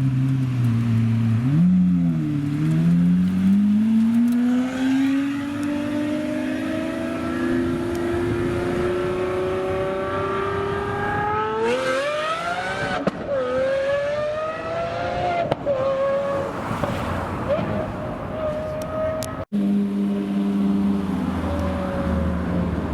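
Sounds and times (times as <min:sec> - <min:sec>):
car engine accelerating hard: 0:01.2 - 0:18.0.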